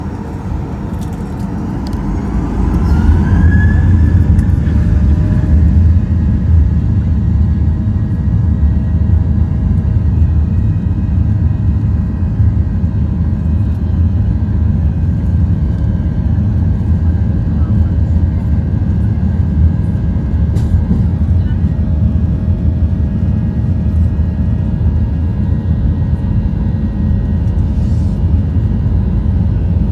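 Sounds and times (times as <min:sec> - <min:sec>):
jet engines spooling up: 0:00.0 - 0:07.0.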